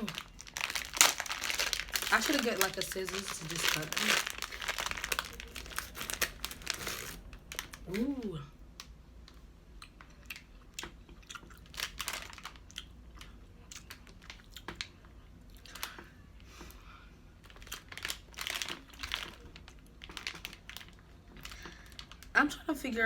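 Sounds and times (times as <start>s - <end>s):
person chewing candy: 0.0s - 8.2s, 9.8s - 16.0s, 17.4s - 22.3s
plastic wrapper crinkling: 0.0s - 8.2s, 11.6s - 12.7s, 17.4s - 22.3s.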